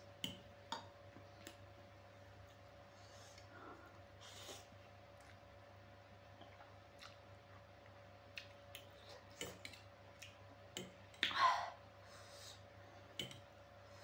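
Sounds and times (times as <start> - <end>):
chewing smacks: 6.4 - 10.4.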